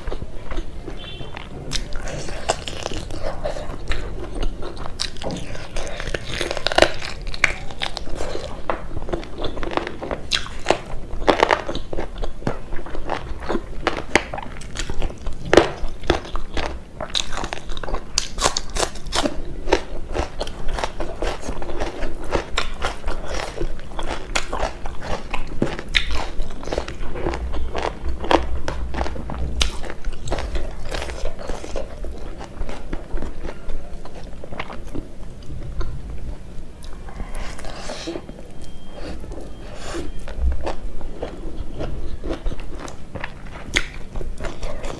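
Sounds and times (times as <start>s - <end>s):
person chewing: 0.0s - 44.9s.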